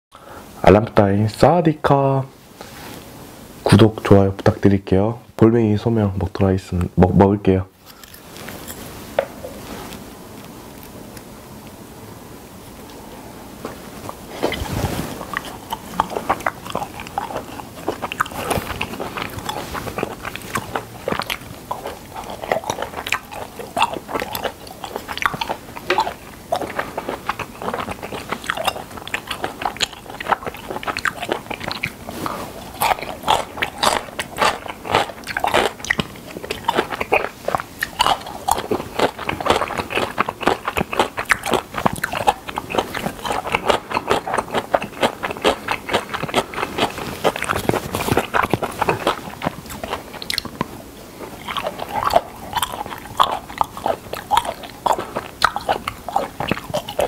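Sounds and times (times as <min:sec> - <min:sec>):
wet chewing and crunching: 0:13.6 - 0:57.0.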